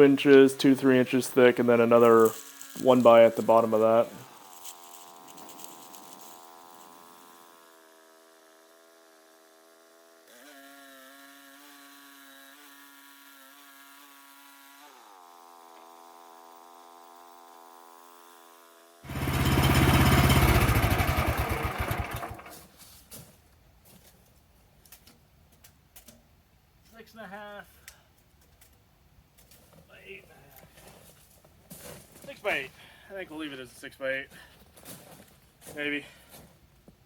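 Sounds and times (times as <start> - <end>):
sawmill engine running: 19.1 - 22.6.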